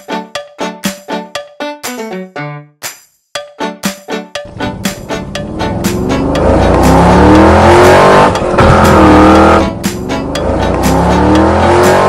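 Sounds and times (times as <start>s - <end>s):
background music: 0.0s - 12.0s
car engine revving: 4.5s - 12.0s.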